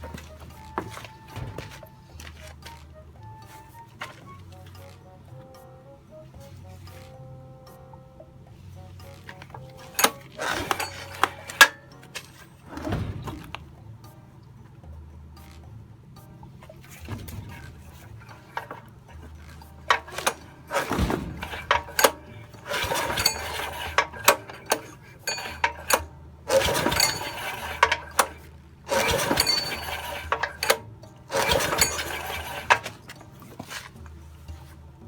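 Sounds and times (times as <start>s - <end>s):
recoil starter pulls: 0.0s - 5.0s, 8.9s - 13.8s, 16.7s - 34.8s
starter clicks: 9.0s - 13.6s, 17.8s - 34.0s.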